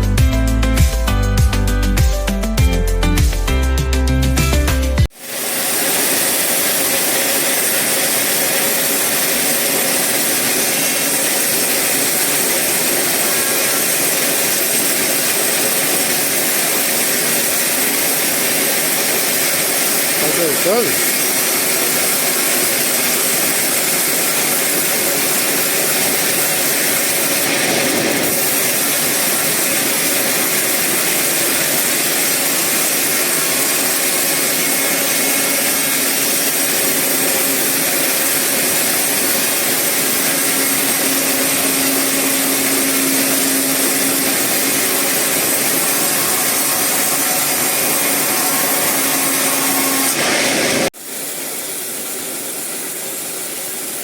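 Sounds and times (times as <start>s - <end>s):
sawmill saw cutting wood: 5.1s - 51.0s
faint held tone: 40.3s - 50.9s.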